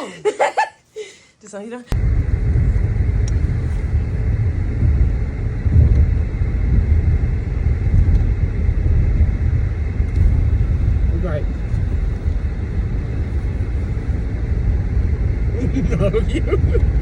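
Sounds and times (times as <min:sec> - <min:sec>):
car road rumble from inside: 0:01.9 - 0:17.0.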